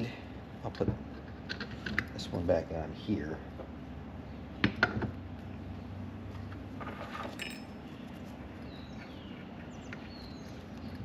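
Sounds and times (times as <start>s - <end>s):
metallic clinks: 7.2s - 7.9s.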